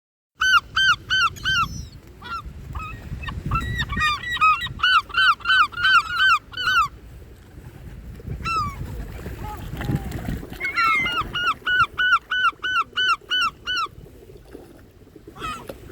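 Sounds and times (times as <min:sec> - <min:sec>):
gulls calling: 0:00.4 - 0:07.0, 0:10.4 - 0:14.1, 0:15.3 - 0:15.9.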